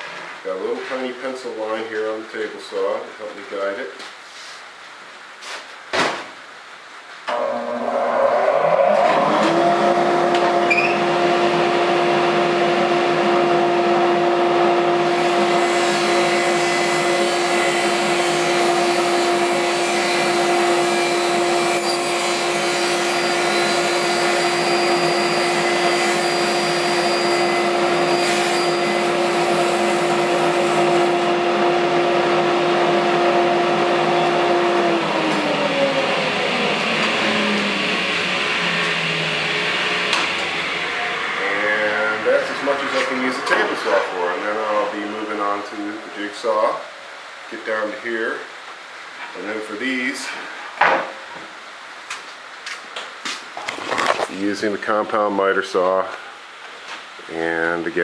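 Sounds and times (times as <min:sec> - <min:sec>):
table saw running: 0:07.3 - 0:45.6.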